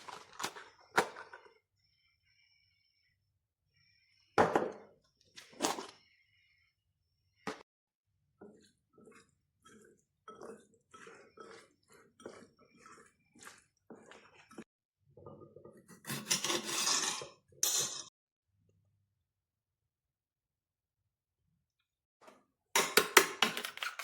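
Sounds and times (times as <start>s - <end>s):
person chewing food: 8.4s - 14.7s.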